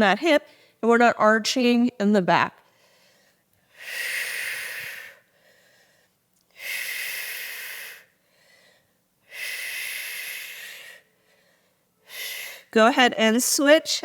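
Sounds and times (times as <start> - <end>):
faint breaths in: 2.6 - 12.7.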